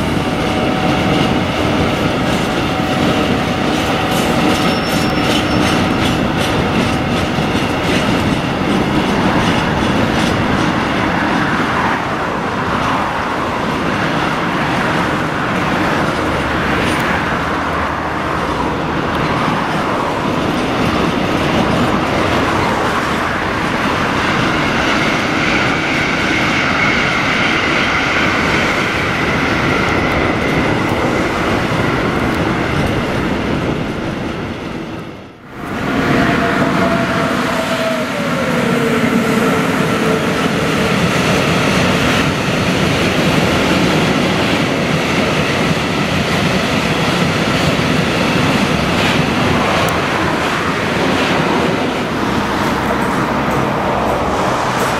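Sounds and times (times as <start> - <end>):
train rumbling past: 0.0 - 54.9.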